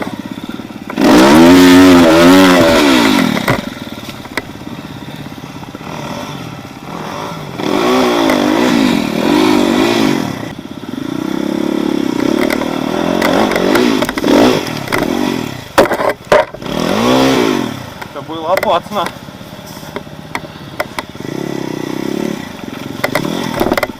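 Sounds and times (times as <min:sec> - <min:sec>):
off-road vehicle engine revving: 0:00.0 - 0:23.9
sharp knocks and clatters: 0:12.2 - 0:15.2, 0:15.8 - 0:16.6, 0:18.0 - 0:19.2, 0:19.9 - 0:21.2, 0:22.6 - 0:23.9.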